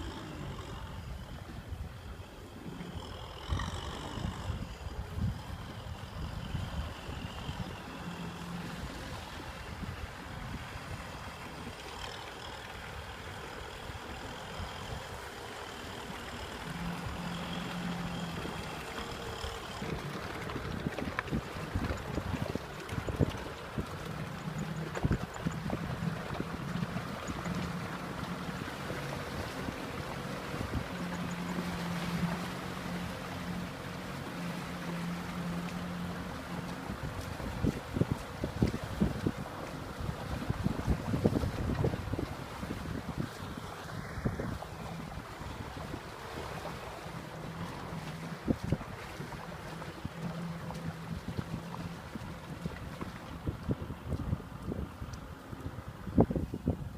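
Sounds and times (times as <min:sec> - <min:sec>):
wind on microphone: 0:00.0 - 0:12.1, 0:16.1 - 0:56.9
tractor diesel engine running: 0:00.0 - 0:54.0.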